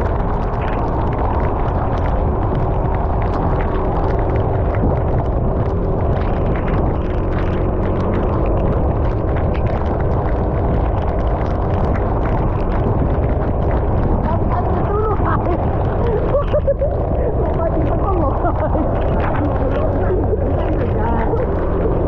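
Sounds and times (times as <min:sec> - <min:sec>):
raindrops tapping: 0:00.0 - 0:22.0
wind rumble on microphone: 0:00.0 - 0:22.0.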